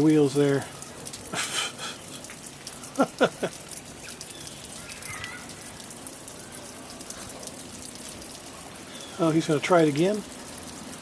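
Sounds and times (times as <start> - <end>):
light rain patter: 0.0 - 11.0
chirp-like calls: 4.0 - 5.8.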